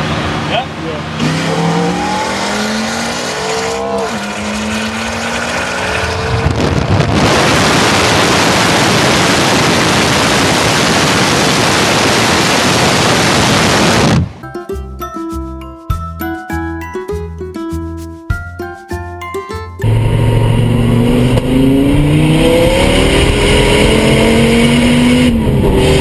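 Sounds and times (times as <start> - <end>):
car engine accelerating hard: 0.0 - 14.2, 19.8 - 26.0.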